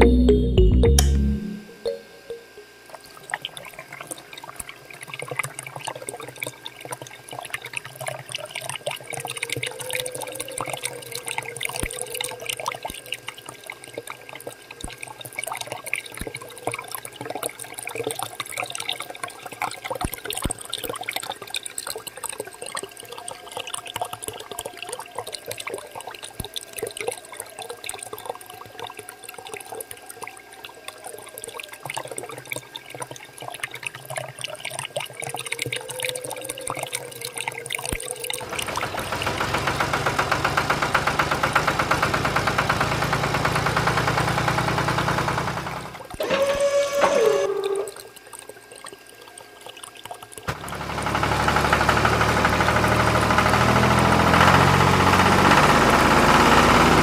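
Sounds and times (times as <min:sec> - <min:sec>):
water splashing into a puddle: 0:37.9 - 0:46.2.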